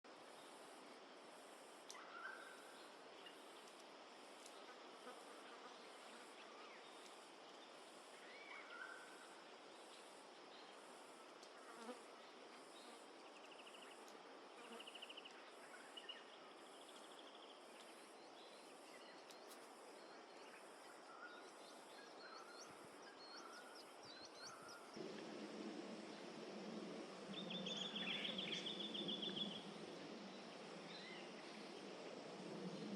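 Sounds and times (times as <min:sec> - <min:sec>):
insect chorus pulsing: 0:00.2 - 0:32.9
low rushing noise: 0:24.9 - 0:32.9.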